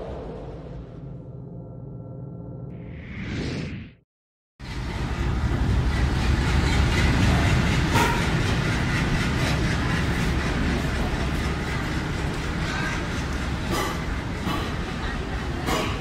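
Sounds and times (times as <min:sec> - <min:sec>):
train rolling past: 0:04.6 - 0:16.0.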